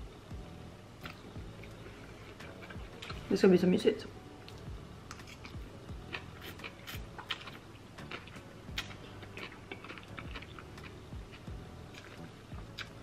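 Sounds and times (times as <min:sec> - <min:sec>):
chewing noodles: 0:04.5 - 0:13.0.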